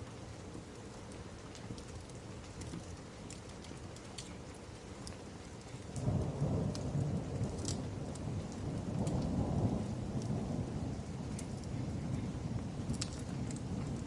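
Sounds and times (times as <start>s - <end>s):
rain hiss: 0.0s - 14.0s
wood fire crackling: 0.0s - 14.0s
thunder rumbling: 5.9s - 14.0s.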